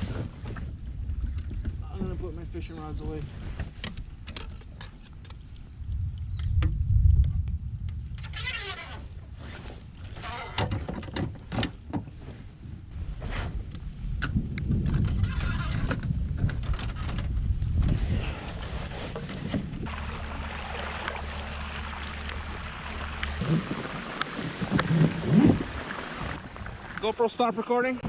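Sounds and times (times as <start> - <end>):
wind rumbling on microphone: 0.0 - 27.1
rain hissing: 19.8 - 28.0.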